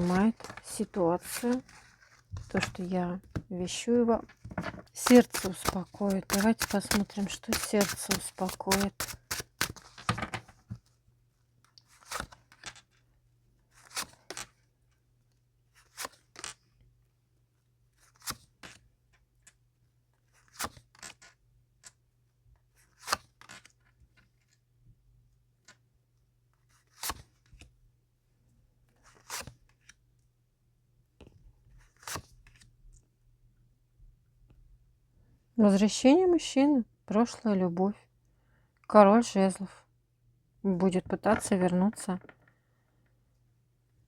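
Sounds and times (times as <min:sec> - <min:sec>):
cards rustling and snapping: 0:00.0 - 0:01.8, 0:04.9 - 0:10.5.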